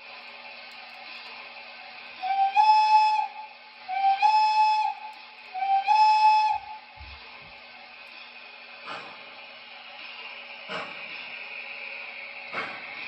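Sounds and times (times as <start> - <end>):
steady hiss and hum: 0.0 - 13.0
model locomotive whistle: 2.2 - 6.9.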